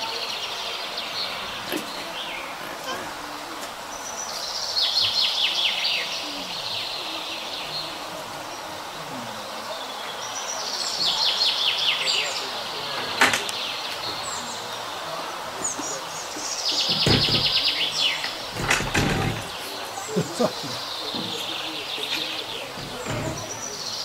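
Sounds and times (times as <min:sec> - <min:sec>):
sharp knocks and low bumps: 0:16.8 - 0:19.6, 0:21.1 - 0:23.8
small bird chirping trills: 0:19.4 - 0:24.0.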